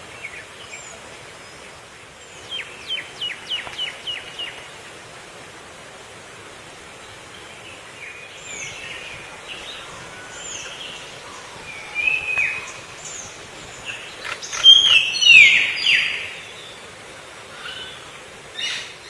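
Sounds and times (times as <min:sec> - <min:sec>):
background hiss: 0:00.0 - 0:19.0
bird chirping: 0:07.5 - 0:16.8.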